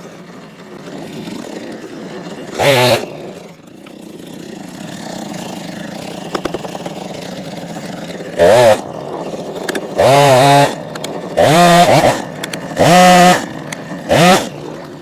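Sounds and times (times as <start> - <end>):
chainsaw idling: 0.0 - 15.0
chainsaw throttle blip: 2.5 - 3.2, 4.8 - 15.0.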